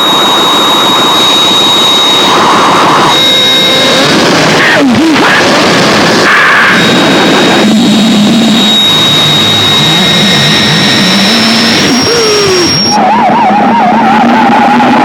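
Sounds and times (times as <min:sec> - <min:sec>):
wavering low drone: 0:00.0 - 0:04.7, 0:05.5 - 0:13.2
thin high whine: 0:00.0 - 0:13.1
distorted noise music: 0:00.0 - 0:15.0
gliding tones: 0:05.9 - 0:13.0.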